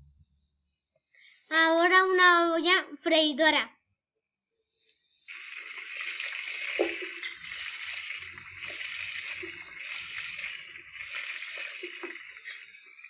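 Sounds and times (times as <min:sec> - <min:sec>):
fryer sizzling: 0:05.3 - 0:13.0
oil popping and crackling: 0:05.4 - 0:13.0.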